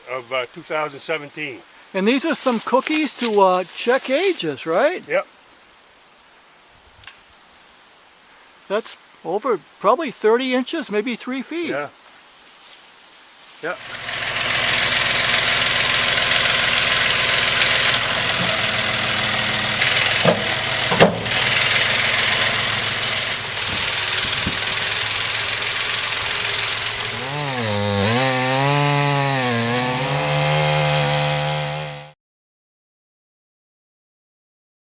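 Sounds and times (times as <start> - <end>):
chainsaw cutting: 13.7 - 32.2
sharp knocks: 18.2 - 24.7.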